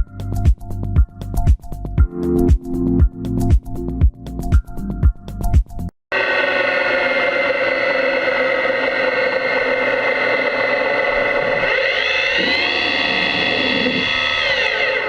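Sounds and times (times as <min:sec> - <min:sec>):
lathe machine whine: 0:06.1 - 0:15.0
metal cutting noise: 0:06.2 - 0:15.0.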